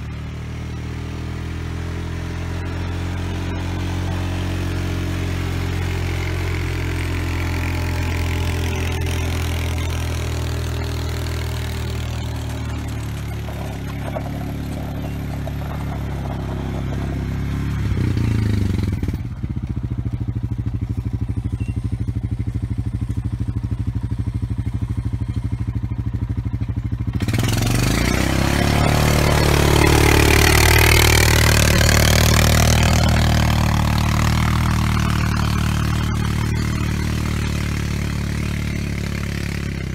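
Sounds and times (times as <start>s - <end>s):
engine revving with whine: 0.0s - 39.9s
vehicle engine under load: 0.0s - 39.9s
blade scraping dirt: 2.3s - 19.8s, 27.2s - 39.9s.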